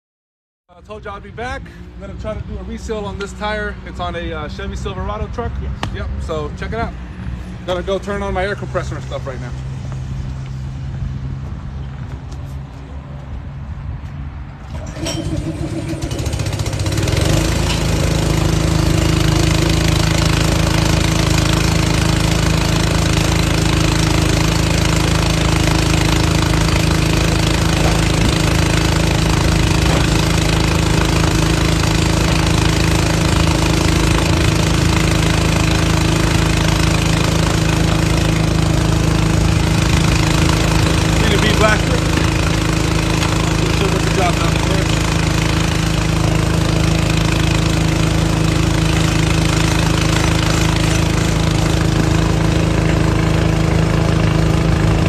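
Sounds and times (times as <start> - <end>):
air compressor engine running: 14.6 - 55.0.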